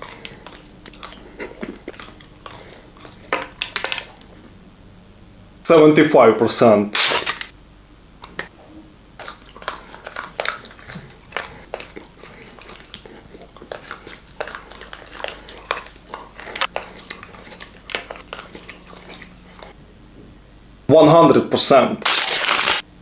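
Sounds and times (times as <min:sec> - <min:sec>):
wet mouth sounds: 0:00.0 - 0:04.3, 0:09.2 - 0:19.8
chewing chocolate crunches: 0:00.0 - 0:04.4, 0:09.2 - 0:19.8, 0:22.0 - 0:22.8.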